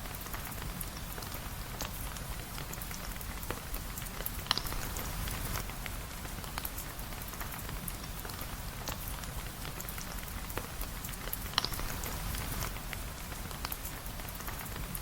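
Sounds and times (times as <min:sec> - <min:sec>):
rain falling on a surface: 0:00.0 - 0:15.0.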